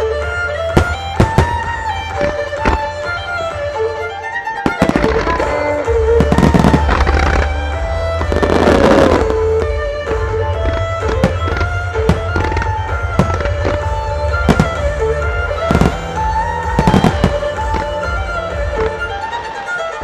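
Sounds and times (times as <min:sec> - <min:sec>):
music with held melody notes: 0:00.0 - 0:20.0
fireworks bursting with sharp bangs: 0:00.7 - 0:20.0
steady bass: 0:05.9 - 0:18.9.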